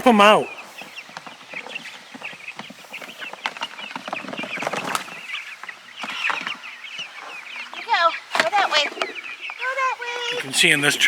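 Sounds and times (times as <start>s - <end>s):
chicks cheeping: 0.0s - 11.0s.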